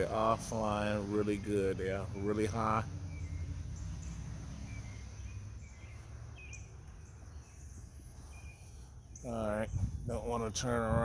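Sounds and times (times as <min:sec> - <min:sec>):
faint bird chirps: 0:03.1 - 0:10.0.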